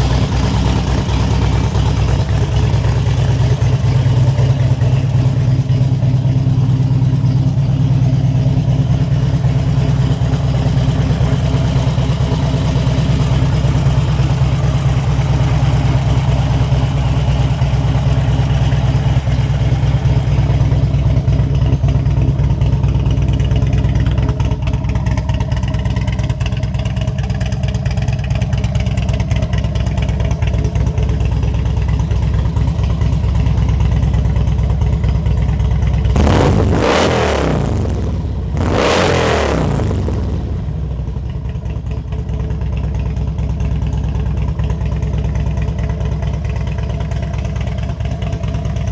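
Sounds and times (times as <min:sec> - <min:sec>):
motorcycle engine idling: 0:00.0 - 0:39.0, 0:39.6 - 0:48.9.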